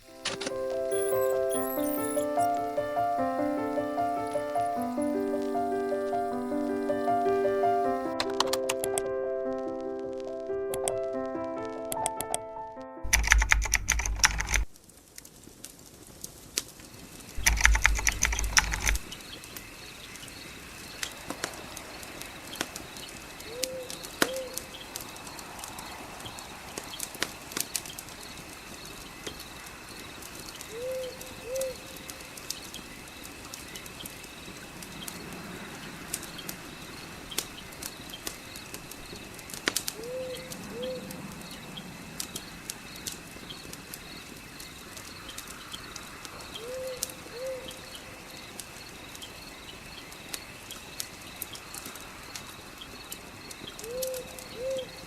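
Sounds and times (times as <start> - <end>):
fire crackling and popping: 0.0 - 12.3, 13.0 - 47.3, 47.9 - 55.0
high-pitched drone: 0.1 - 8.2.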